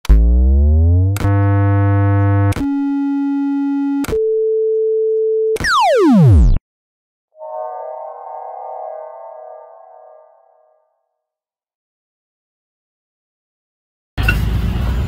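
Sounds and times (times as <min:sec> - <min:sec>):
synthesized electronic tones: 0:00.2 - 0:04.2, 0:05.6 - 0:06.6, 0:07.4 - 0:10.9
click: 0:01.1 - 0:01.4, 0:02.2 - 0:02.7, 0:03.9 - 0:04.2.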